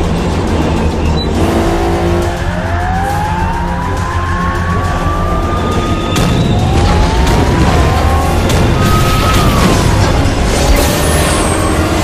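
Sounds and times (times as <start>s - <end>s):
car engine revving: 0.1s - 12.0s.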